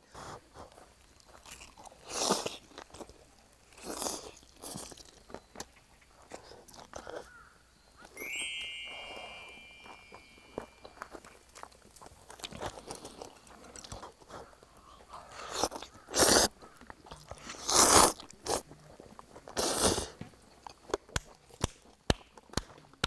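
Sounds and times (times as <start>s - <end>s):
person chewing food: 0.2s - 7.3s, 11.5s - 20.0s.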